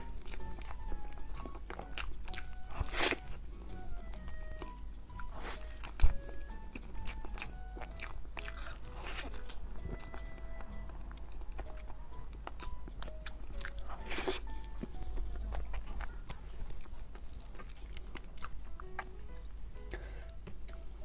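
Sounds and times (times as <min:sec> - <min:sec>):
simple background melody: 0:00.0 - 0:21.0
chewing and lip smacks: 0:04.3 - 0:20.8.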